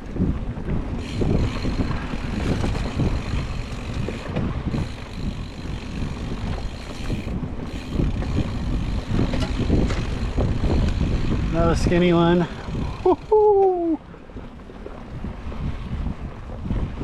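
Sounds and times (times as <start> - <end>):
bike rolling on dirt trail: 0.0 - 17.0
wind buffeting microphone: 0.0 - 17.0
bike knocks and rattles: 0.2 - 13.3.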